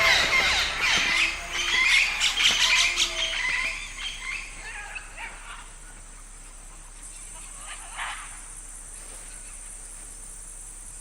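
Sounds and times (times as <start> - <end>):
high-pitched insect drone: 0.0 - 5.4
animal call: 0.0 - 6.1.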